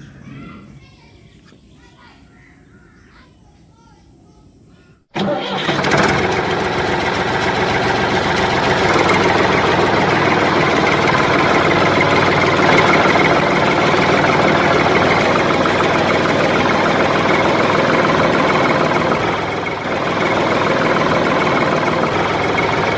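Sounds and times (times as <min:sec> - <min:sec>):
tractor engine idling: 0:05.2 - 0:22.9.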